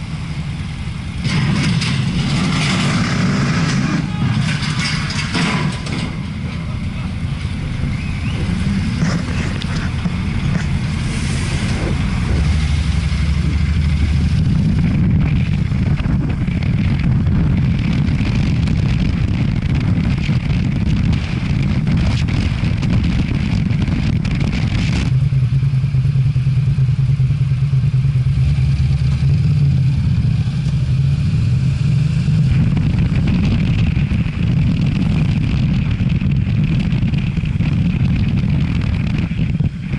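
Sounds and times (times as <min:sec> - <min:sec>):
motorcycle engine running: 0:00.0 - 0:39.9
wind rushing over camera: 0:07.2 - 0:25.3, 0:28.8 - 0:39.9.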